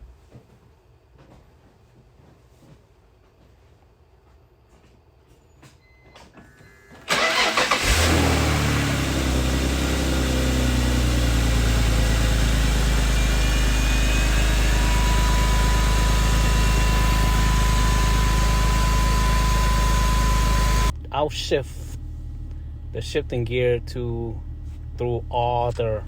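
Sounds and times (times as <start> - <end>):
car engine starter cranking: 7.0 - 20.9
car engine idling: 7.1 - 26.0.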